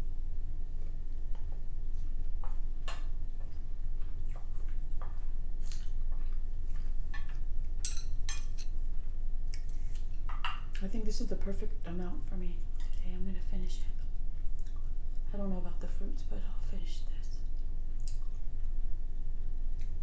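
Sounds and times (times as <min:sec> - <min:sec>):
steady low hum: 0:00.0 - 0:20.0
wet mouth clicks and chewing: 0:02.8 - 0:07.5, 0:09.5 - 0:10.4, 0:14.0 - 0:15.0, 0:17.5 - 0:18.8.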